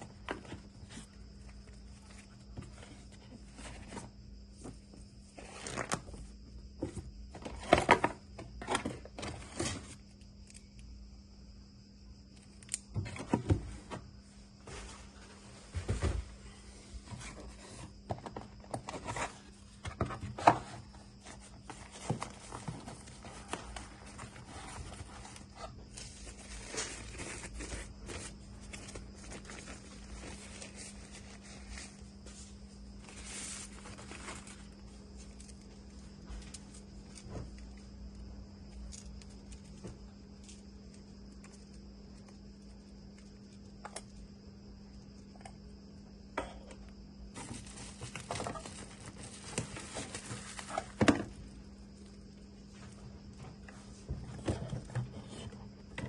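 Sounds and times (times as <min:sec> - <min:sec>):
cardboard and plastic rustling: 0:00.0 - 0:10.1, 0:12.9 - 0:37.9, 0:47.3 - 0:56.0
low electrical hum: 0:00.0 - 0:56.0.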